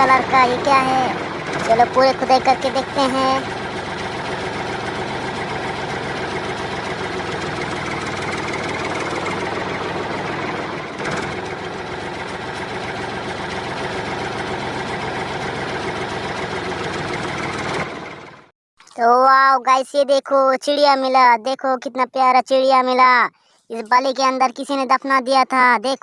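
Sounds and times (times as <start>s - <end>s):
digger engine running: 0.0s - 18.5s.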